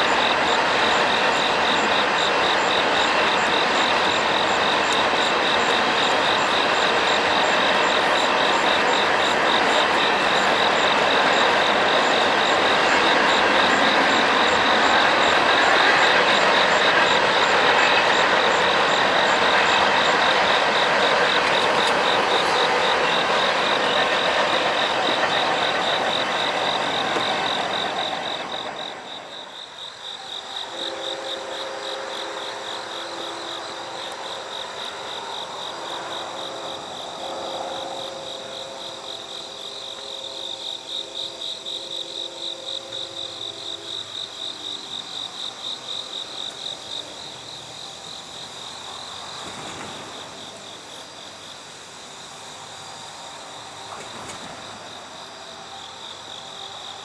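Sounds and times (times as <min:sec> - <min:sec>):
insects chirping: 0:00.0 - 0:57.0
train rushing past: 0:00.0 - 0:57.0.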